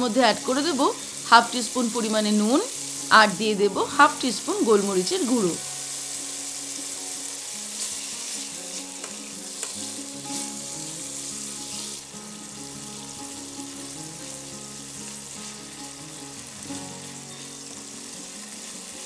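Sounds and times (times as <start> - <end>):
chicken sizzling in oil: 0.0 - 19.0
spatula scraping and tapping pan: 7.8 - 10.5.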